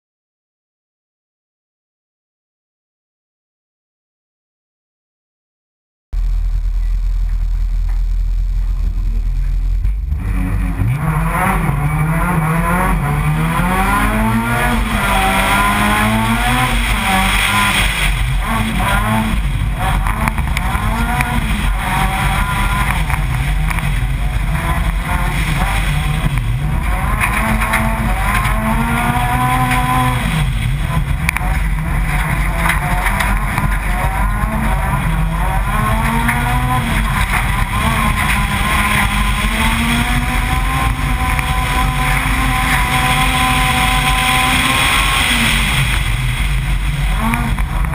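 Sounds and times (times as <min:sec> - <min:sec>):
car engine revving: 0:06.2 - 0:47.9
tyres on gravel: 0:13.0 - 0:47.9.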